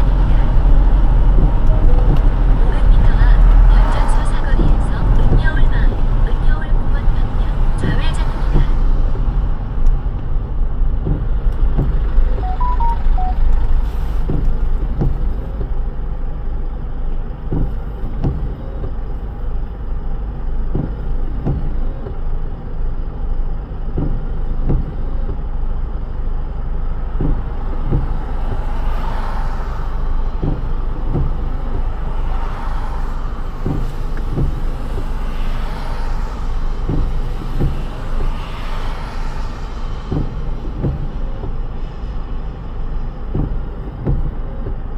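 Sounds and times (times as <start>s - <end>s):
road rumble: 0.0s - 44.9s
short beeps: 12.3s - 13.6s
tyre hiss on wet road: 27.2s - 44.2s.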